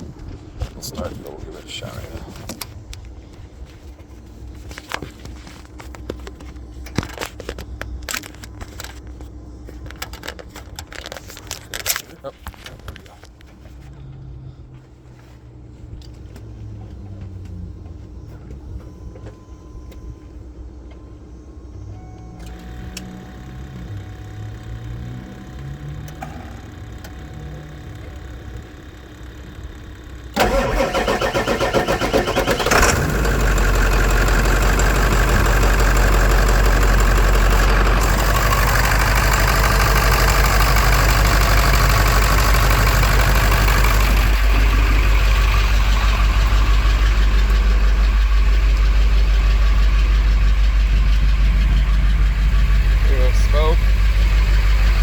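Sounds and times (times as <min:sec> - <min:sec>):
truck engine idling: 0:13.5 - 0:55.0
truck engine cranking: 0:22.4 - 0:55.0.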